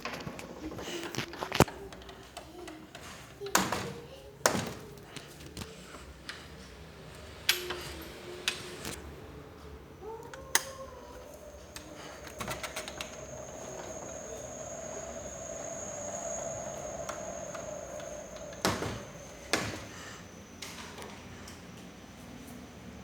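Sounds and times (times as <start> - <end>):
ceiling fan high whine: 0.0 - 23.0
fan switch clicks: 10.2 - 19.9.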